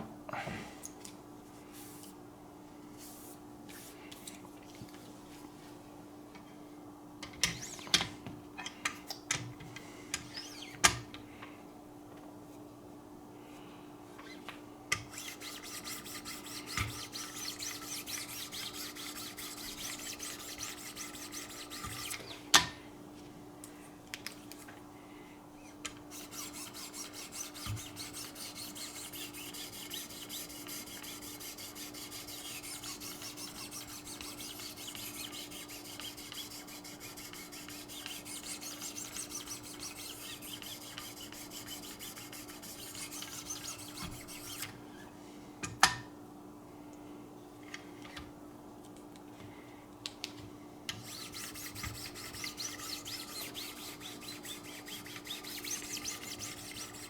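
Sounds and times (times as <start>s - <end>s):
sharpening stone scraping knife: 15.2s - 22.2s, 26.2s - 44.6s, 51.0s - 57.0s.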